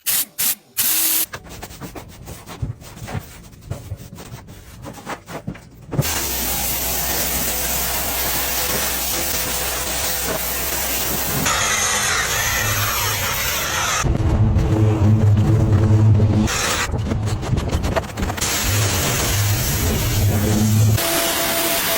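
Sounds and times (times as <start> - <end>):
vacuum cleaner running: 6.0 - 11.5, 20.9 - 21.9.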